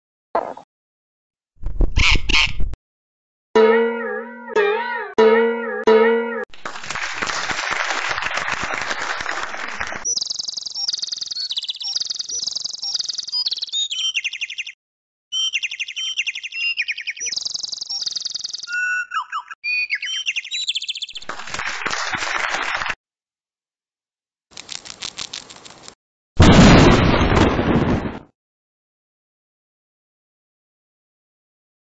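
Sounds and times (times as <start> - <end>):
bird whistles and chirps: 10.1 - 21.2.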